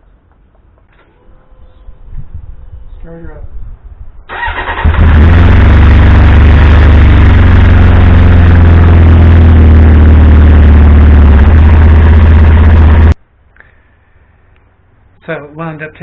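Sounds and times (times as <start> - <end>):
motorcycle starter cranking: 4.3 - 5.6
motorcycle engine idling: 4.9 - 13.2.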